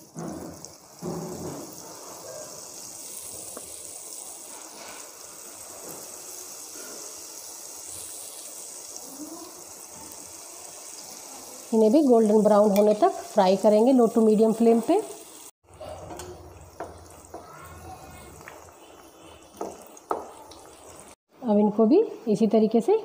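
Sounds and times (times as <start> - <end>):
batter sizzling in hot oil: 0.0 - 21.3.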